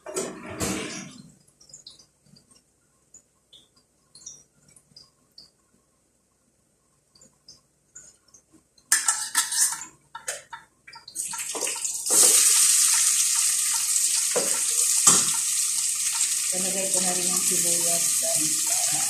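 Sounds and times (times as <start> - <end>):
onion sizzling in hot oil: 11.5 - 19.0.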